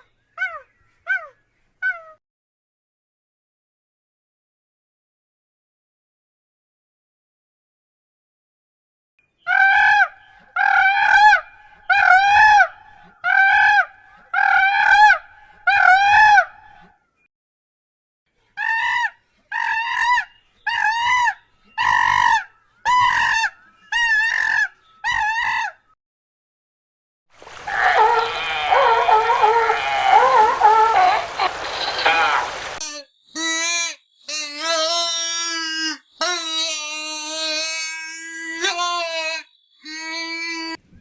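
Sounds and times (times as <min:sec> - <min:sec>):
bird calling loudly: 0:27.4 - 0:32.8
overlapping bird calls: 0:27.4 - 0:32.8.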